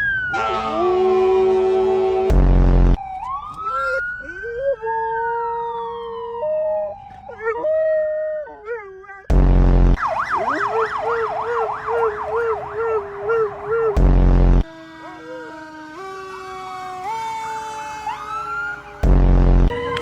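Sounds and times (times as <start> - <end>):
emergency vehicle siren: 0.0 - 8.8, 10.0 - 20.0
bursts of deep noise: 2.1 - 3.0, 9.3 - 15.0, 18.3 - 20.0
dogs howling: 3.8 - 9.3, 10.3 - 14.0, 14.7 - 19.0, 19.7 - 20.0.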